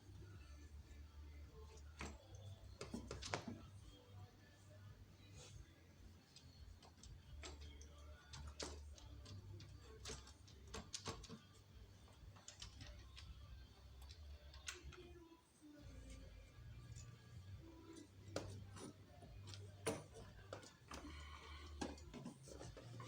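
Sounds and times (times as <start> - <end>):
hand tools clicking and tapping: 17.9 - 23.0.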